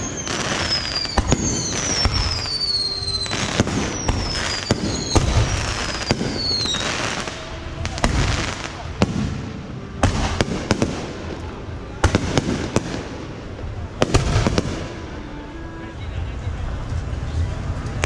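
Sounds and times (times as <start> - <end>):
rocket whistles falling in pitch: 0.0 - 6.8
firework cracks and bangs: 0.0 - 15.1.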